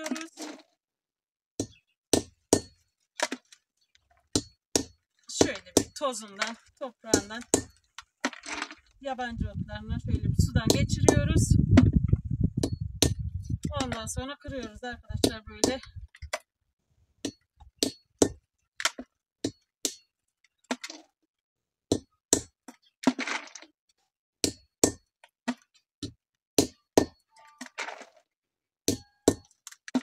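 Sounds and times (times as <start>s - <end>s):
berries being struck sharp knocks: 1.6s - 2.8s
hard stones crunching: 1.6s - 16.4s.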